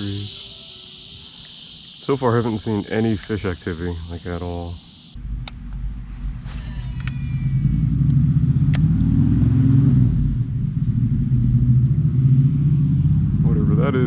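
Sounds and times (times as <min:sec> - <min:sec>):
vehicle engine rumbling: 0:02.2 - 0:14.0.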